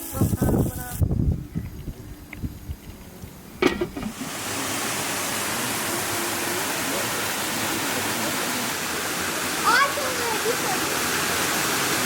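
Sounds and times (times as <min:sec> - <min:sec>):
fast-flowing water rushing: 0:03.6 - 0:12.0.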